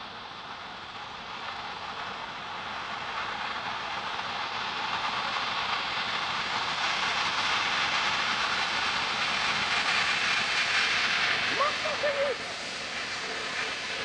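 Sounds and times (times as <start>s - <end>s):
jet airliner engines roaring: 6.4s - 14.0s.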